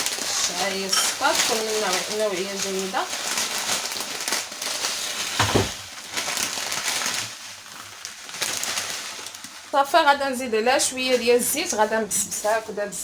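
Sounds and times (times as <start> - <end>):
dry noodles crackling: 0.0 - 13.0
dull thump: 5.4 - 5.8.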